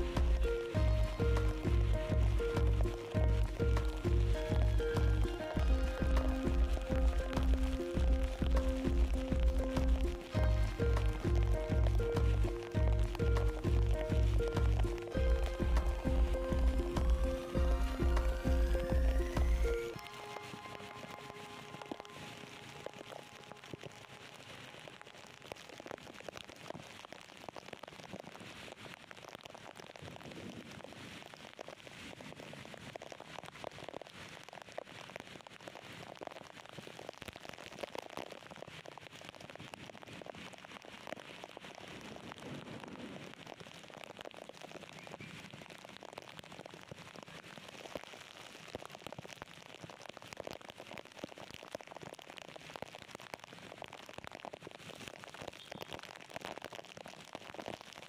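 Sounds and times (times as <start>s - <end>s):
heavy rain falling: 0.0s - 32.1s.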